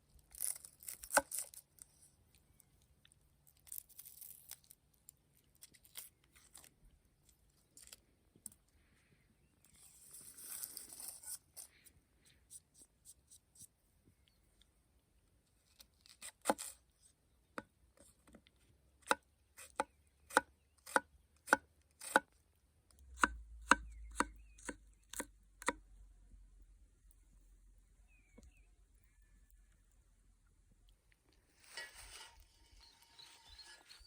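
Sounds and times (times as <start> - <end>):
rustle: 31.5 - 34.0.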